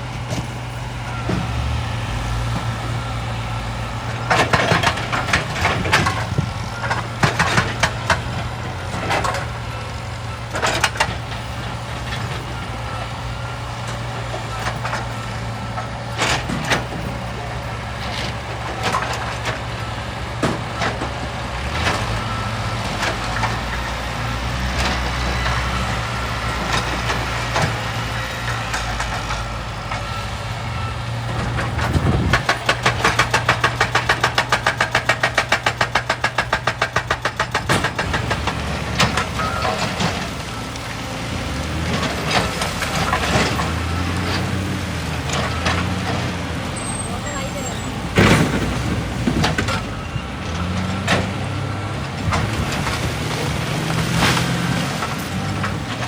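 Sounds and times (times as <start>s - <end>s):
excavator diesel engine: 0.0s - 56.0s
knocks and clatter: 4.2s - 9.6s, 31.3s - 40.9s, 47.9s - 56.0s.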